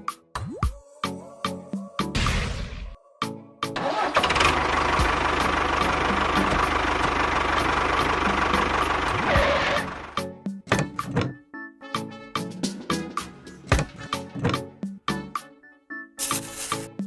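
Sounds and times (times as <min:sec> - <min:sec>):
engine running: 0:03.8 - 0:10.2.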